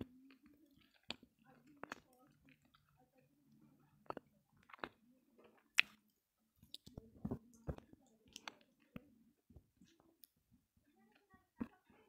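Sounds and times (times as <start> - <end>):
crunchy chewing: 0.0 - 9.0.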